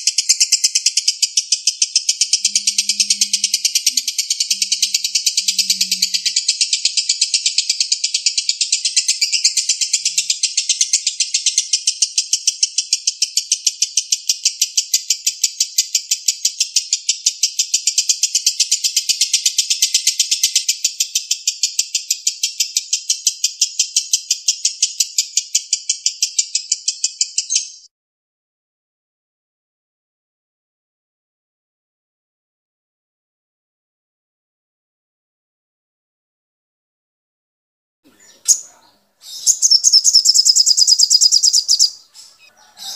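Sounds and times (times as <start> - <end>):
lovebird singing shrill notes: 0.0 - 27.9, 38.1 - 42.9.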